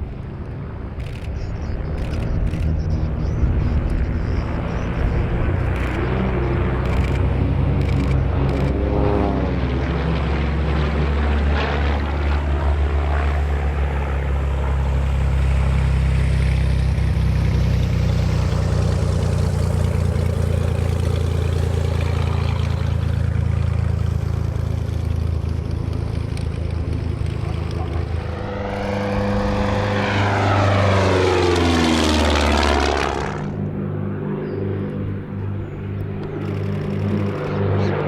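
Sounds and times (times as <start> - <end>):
propeller planes passing by: 0.0 - 38.0
steady low rumble: 19.4 - 34.2.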